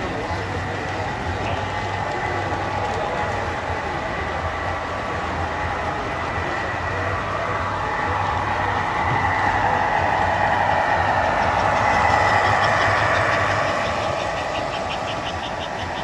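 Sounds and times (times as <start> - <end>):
model train whirring hum: 0.0 - 16.0
rhythmic clicking: 0.0 - 16.0.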